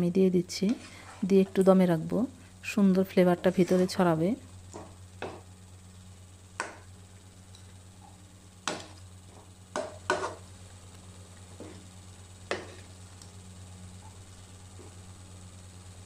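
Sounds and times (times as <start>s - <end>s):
wooden spatula tapping a wok: 4.8s - 5.4s, 6.6s - 6.8s, 9.7s - 10.4s.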